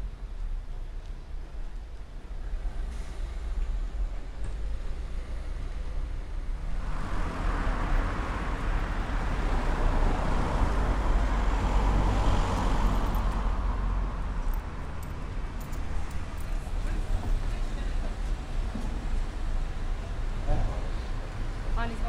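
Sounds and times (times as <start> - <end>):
car driving past: 6.7 - 15.0.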